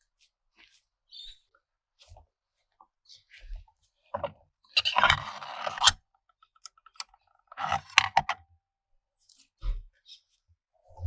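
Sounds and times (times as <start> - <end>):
metal parts scraping: 4.8 - 5.9, 7.6 - 8.4.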